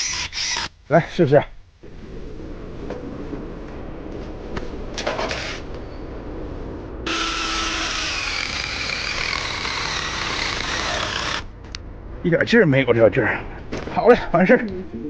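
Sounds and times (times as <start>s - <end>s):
angle grinder whining: 0.0s - 0.7s, 7.1s - 11.5s.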